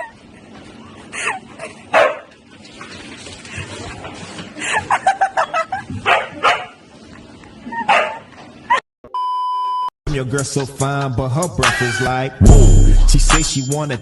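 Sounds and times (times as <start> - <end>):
dog barking: 2.0 - 2.3, 6.0 - 6.8, 7.9 - 8.2.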